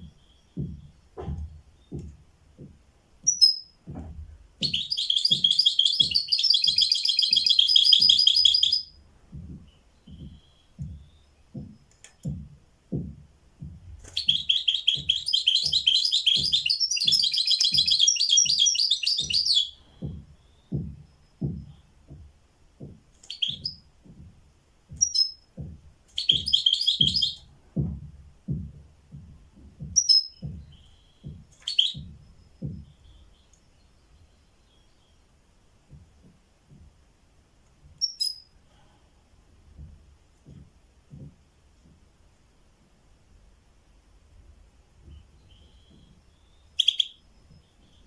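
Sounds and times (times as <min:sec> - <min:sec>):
songbird singing: 0:00.0 - 0:36.8, 0:37.7 - 0:44.1, 0:44.8 - 0:48.0
soft low thuds: 0:00.0 - 0:48.0.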